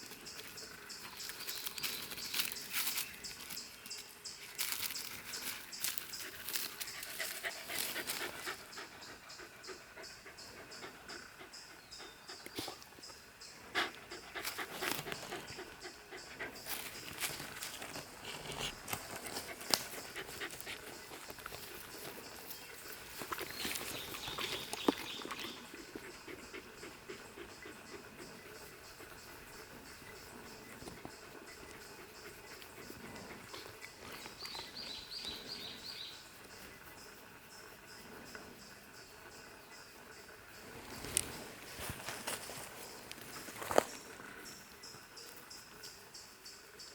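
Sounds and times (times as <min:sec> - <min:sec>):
dog panting: 0:06.2 - 0:35.9
scuffs and rustles: 0:40.8 - 0:44.3.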